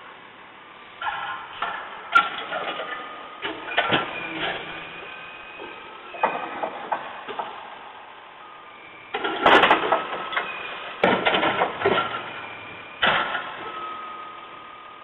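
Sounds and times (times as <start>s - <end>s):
steady whine: 0.0s - 15.0s
garbage truck noisy bursts: 0.6s - 15.0s.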